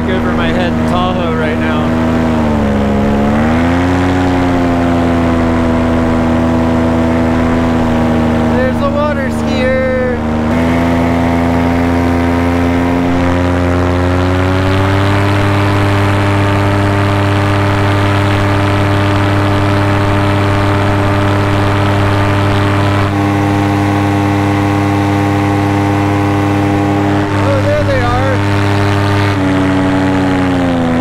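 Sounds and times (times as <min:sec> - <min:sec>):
paramotor engine and propeller: 0:00.0 - 0:31.0.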